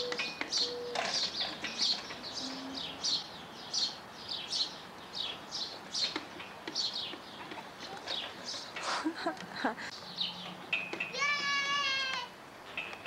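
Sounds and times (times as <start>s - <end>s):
bird chirping: 0.0s - 8.8s.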